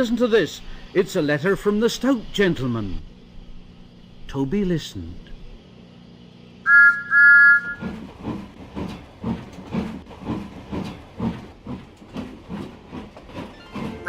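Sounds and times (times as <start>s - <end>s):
steam locomotive whistle: 6.6s - 7.9s
steam engine chuffing: 7.6s - 14.0s.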